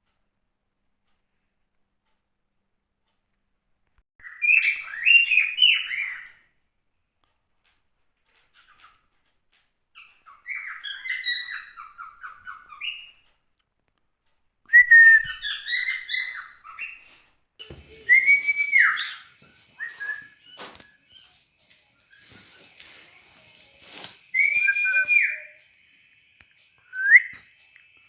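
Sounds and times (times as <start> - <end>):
cockatiel whistling and chirping: 4.2 - 6.3, 10.0 - 13.1, 14.8 - 17.0, 17.6 - 28.0.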